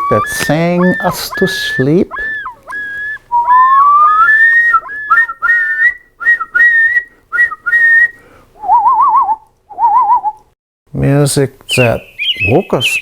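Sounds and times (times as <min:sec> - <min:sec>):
person whistling a tune: 0:00.0 - 0:10.4.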